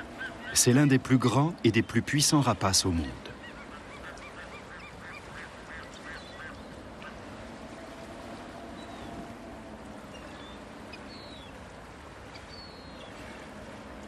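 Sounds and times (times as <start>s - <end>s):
bird yelping calls: 0.0s - 1.0s, 3.3s - 7.2s.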